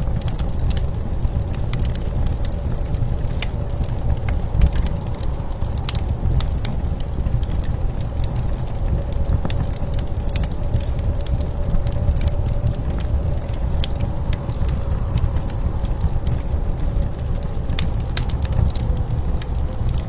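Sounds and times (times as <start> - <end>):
blizzard wind rumble: 0.0 - 20.0
wood fire crackling: 0.0 - 20.0.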